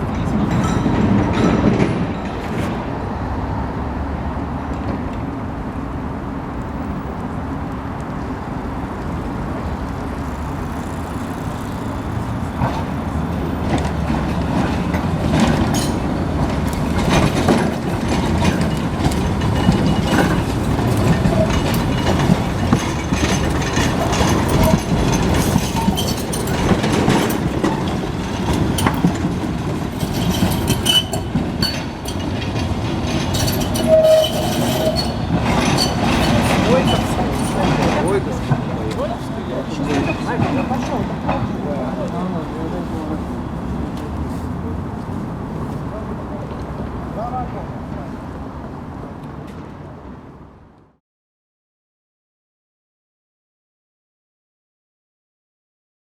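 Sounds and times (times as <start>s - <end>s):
tram wheels clicking and knocking: 0.0s - 3.8s, 6.4s - 44.3s
tram rolling on rails: 0.0s - 51.0s
wheel squeal: 10.0s - 41.8s.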